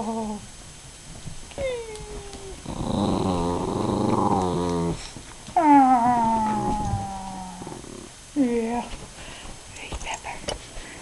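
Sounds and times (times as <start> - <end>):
dog whining: 1.6 - 8.1
small dog growling: 2.3 - 8.2.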